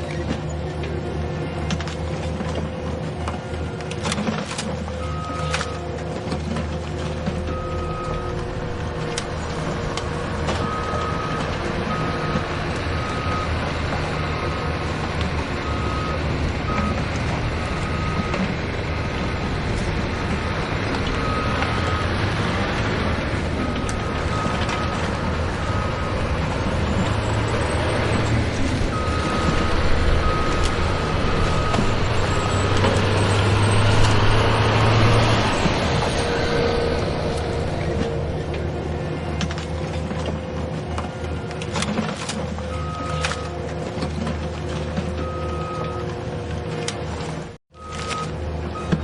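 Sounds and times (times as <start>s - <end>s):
heavy diesel machinery running: 0.0s - 49.0s
back-up alarm beeping: 5.0s - 5.8s, 7.4s - 9.7s, 10.5s - 18.6s, 21.1s - 22.2s, 23.5s - 36.7s.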